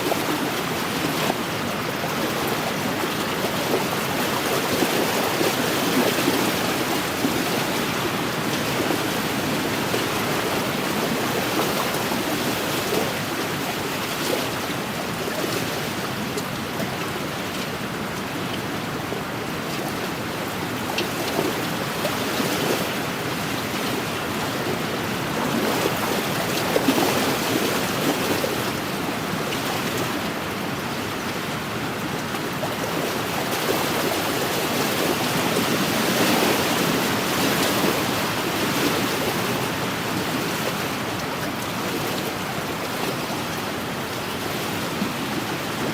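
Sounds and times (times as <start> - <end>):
waves lapping on a shore: 0.0 - 45.9.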